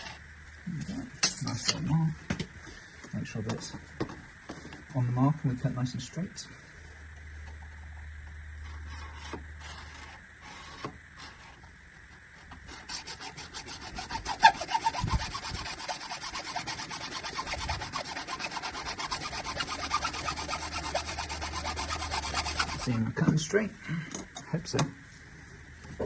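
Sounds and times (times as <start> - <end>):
saw cutting through pipe: 0.0 - 0.2, 12.6 - 23.0.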